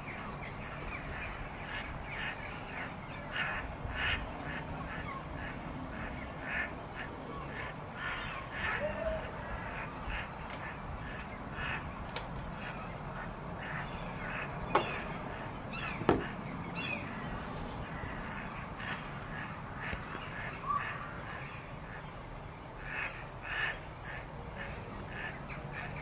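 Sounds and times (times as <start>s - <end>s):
birds harsh calls: 0.0s - 26.0s
sharp knocks: 16.0s - 16.4s.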